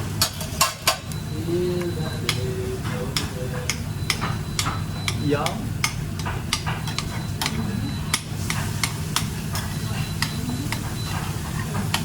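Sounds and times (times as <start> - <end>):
utensils scraping pans and dishes: 0.0 - 5.5, 6.1 - 12.0
kitchen extraction hum: 0.0 - 12.0
food frying: 5.6 - 12.0.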